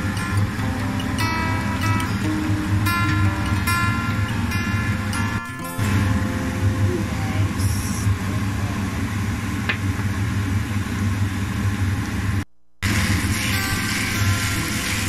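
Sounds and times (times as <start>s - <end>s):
steady low hum: 0.0s - 15.0s
potato and onion sizzling: 12.8s - 15.0s.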